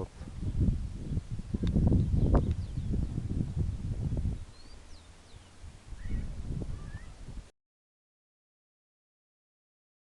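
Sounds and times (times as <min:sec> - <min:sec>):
wind rumbling on microphone: 0:00.0 - 0:07.5.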